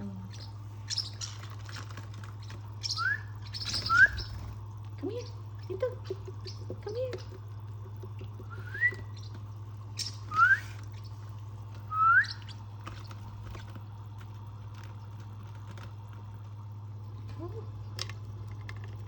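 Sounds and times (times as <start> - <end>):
steady low hum: 0.0 - 19.0
person whistling: 8.6 - 9.0, 10.3 - 10.7.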